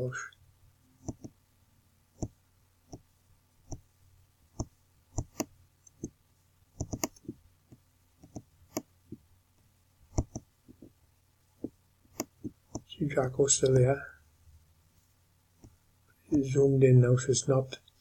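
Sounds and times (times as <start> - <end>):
computer mouse clicking: 1.0 - 1.4, 4.6 - 6.2, 6.8 - 7.4, 8.2 - 8.9, 10.1 - 10.5, 12.1 - 12.9.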